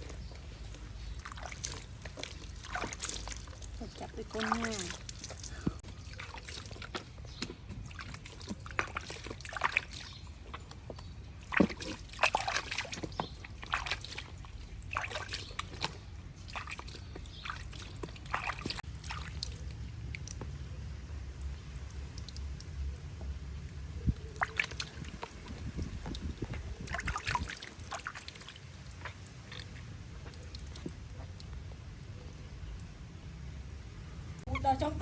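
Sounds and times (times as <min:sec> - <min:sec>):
water sloshing and splashing: 0:00.0 - 0:35.0
water trickling: 0:00.0 - 0:35.0.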